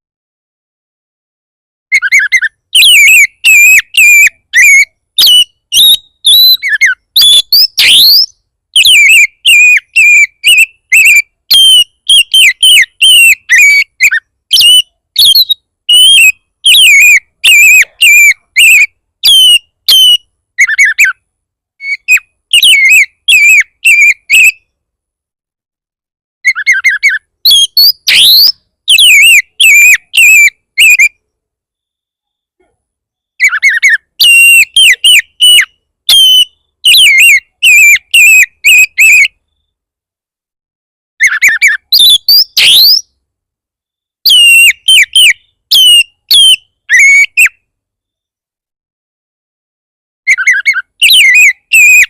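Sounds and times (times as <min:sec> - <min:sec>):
bird singing sharp whistles: 0:01.9 - 0:21.1, 0:26.5 - 0:31.1, 0:33.3 - 0:39.2, 0:41.2 - 0:43.1, 0:44.3 - 0:47.5, 0:50.3 - 0:52.0.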